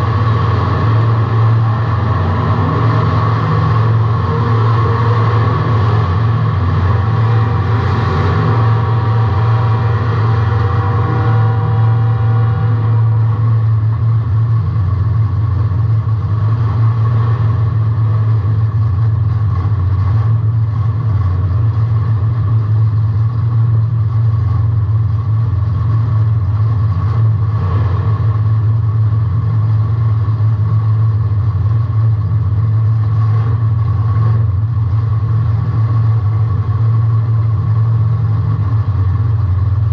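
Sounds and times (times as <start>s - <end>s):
car engine drone from inside: 0.0s - 39.9s.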